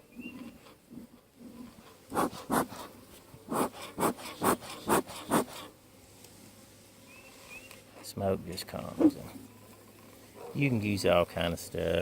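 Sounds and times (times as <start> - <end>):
bellows puffs of air: 2.1 - 2.9, 3.5 - 5.7.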